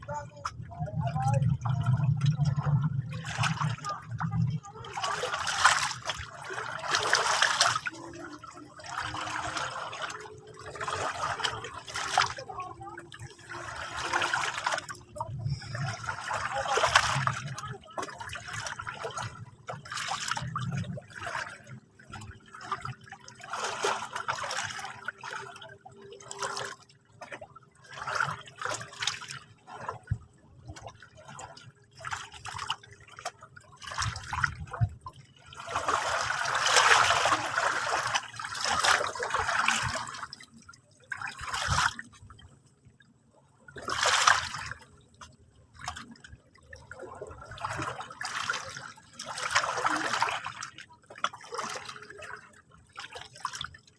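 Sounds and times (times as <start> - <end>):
sea water lapping at shore: 0.0 - 53.9.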